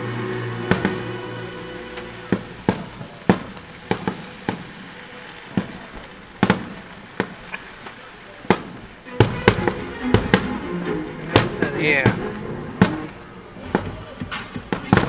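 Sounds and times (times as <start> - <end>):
faint music: 0.0 - 15.0
fireworks bangs: 0.0 - 15.0.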